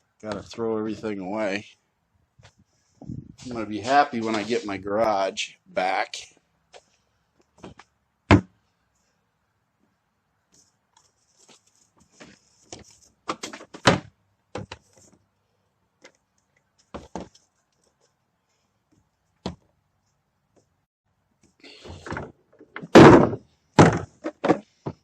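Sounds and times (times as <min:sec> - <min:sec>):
plastic bottles knocking and clattering: 0:21.9 - 0:25.0
loud thump: 0:22.9 - 0:24.6.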